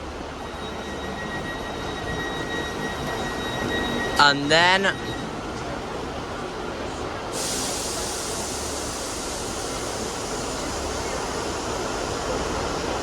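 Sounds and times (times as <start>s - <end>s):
diesel train rumbling: 0.0s - 13.0s
hiss of escaping air: 7.3s - 12.0s.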